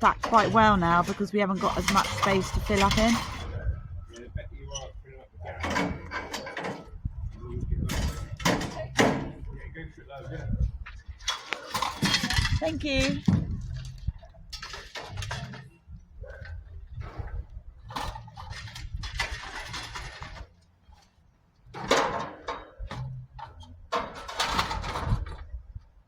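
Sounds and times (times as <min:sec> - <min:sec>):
scrap metal clattering and scraping: 0:00.0 - 0:03.8, 0:04.8 - 0:25.7
low steady rumble: 0:00.0 - 0:26.0.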